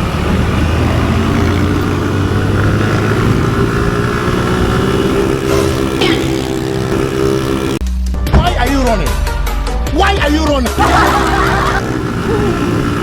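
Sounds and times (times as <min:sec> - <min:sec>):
motorcycle engine accelerating: 0:00.0 - 0:08.0, 0:10.8 - 0:13.0
road noise: 0:00.0 - 0:13.0.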